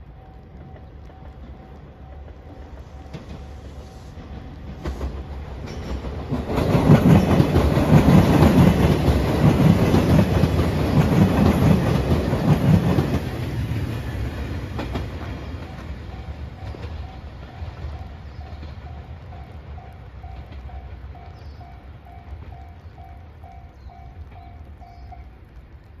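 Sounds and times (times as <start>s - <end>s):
diesel train passing: 0.0s - 26.0s
wheels clattering over rail joints: 0.6s - 21.6s.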